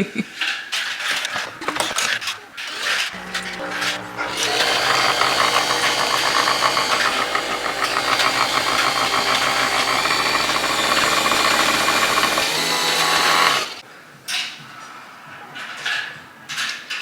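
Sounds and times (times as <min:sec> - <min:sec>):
coffee machine whirring: 0:01.6 - 0:13.8.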